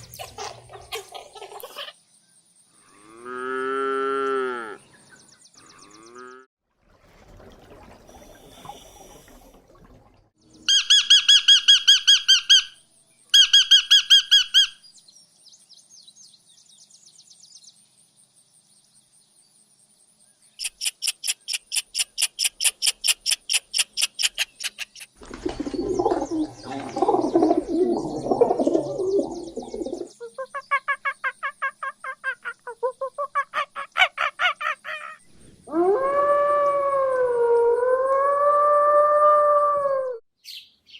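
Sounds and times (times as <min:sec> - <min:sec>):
faint high bird chirps: 0:10.4 - 0:17.7, 0:20.2 - 0:25.1, 0:40.4 - 0:40.9
pulsed trilling bird calls: 0:10.6 - 0:14.8, 0:20.6 - 0:35.5.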